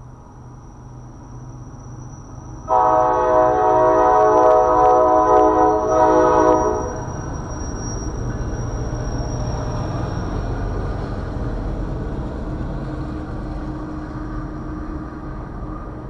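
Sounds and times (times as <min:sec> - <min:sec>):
faint high whine: 0:00.0 - 0:10.8
freight train rumbling past: 0:00.0 - 0:16.0.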